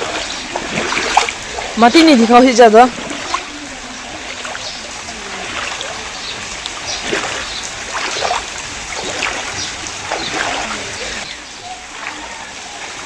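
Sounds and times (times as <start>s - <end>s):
heavy rain falling: 0.0s - 13.0s
water splashing and running: 0.0s - 13.0s.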